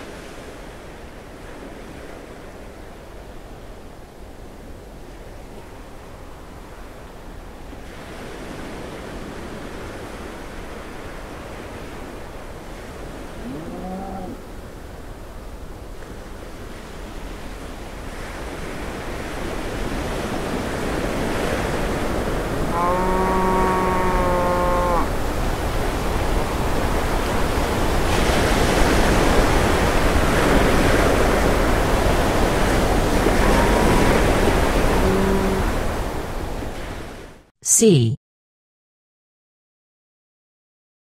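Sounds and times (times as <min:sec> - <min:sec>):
wind: 0:00.0 - 0:37.9
cow mooing: 0:13.4 - 0:14.4, 0:22.7 - 0:25.1, 0:33.3 - 0:35.8
ocean surf rushing: 0:16.5 - 0:37.9.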